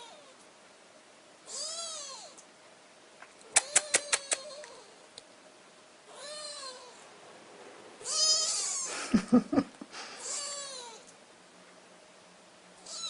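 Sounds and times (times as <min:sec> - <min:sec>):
kittens mewing: 0:03.5 - 0:05.0, 0:08.0 - 0:09.4, 0:10.0 - 0:11.1.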